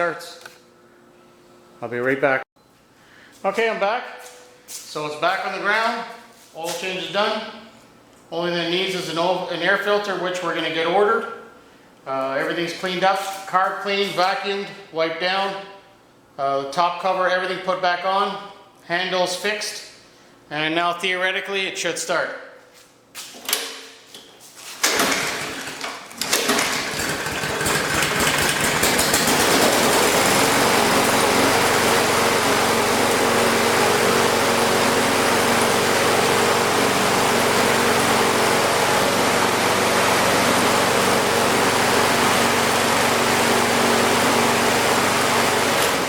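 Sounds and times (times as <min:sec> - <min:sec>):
lawn mower engine starting: 0:24.6 - 0:46.0
lawn mower engine running: 0:24.8 - 0:46.0.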